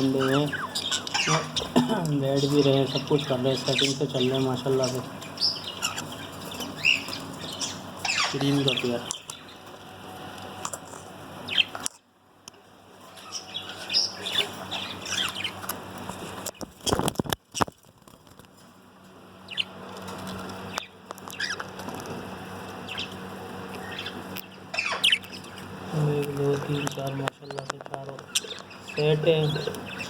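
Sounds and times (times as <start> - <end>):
parrots chirping: 0.0 - 10.2, 11.4 - 11.8, 13.0 - 17.0, 19.4 - 21.8, 22.8 - 25.9, 28.2 - 30.0
wings flapping: 14.4 - 18.5.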